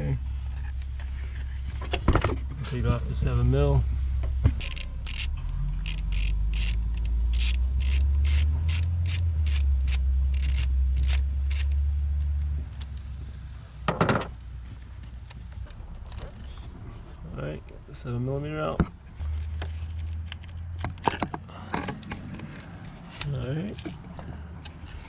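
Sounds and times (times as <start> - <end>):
ratchet wrench clicking: 4.6 - 11.8.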